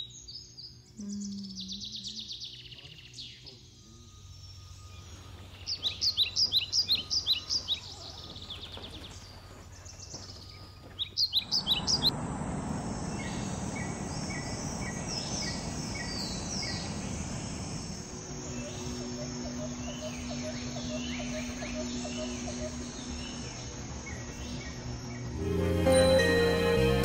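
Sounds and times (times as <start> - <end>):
birds chirping: 0.0 - 27.0
steady rushing noise: 11.4 - 25.6.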